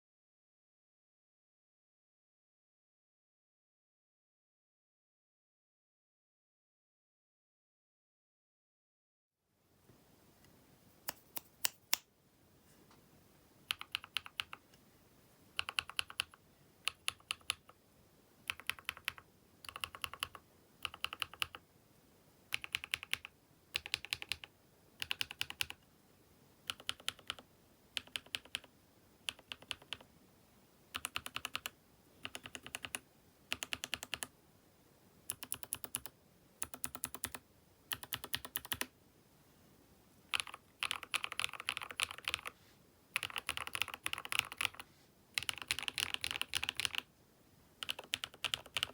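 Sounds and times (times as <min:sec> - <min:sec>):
mechanical keyboard typing: 0:13.7 - 0:14.6, 0:15.6 - 0:17.8, 0:18.4 - 0:21.6, 0:22.5 - 0:25.8, 0:26.7 - 0:27.4, 0:28.0 - 0:28.7, 0:29.3 - 0:30.0, 0:30.9 - 0:34.3, 0:35.3 - 0:38.9, 0:40.3 - 0:42.6, 0:43.2 - 0:44.8, 0:45.4 - 0:47.1, 0:47.8 - 0:48.9.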